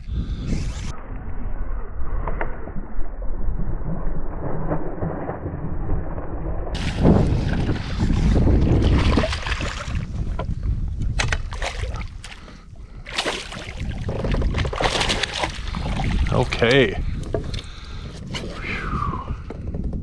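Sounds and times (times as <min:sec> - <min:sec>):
wind buffeting microphone: 0:06.7 - 0:20.0.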